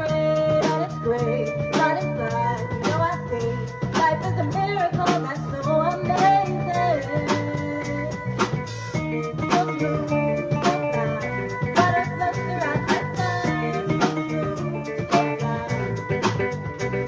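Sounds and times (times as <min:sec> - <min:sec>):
drum kit beat: 0:00.0 - 0:17.0
guitar playing: 0:08.9 - 0:17.0.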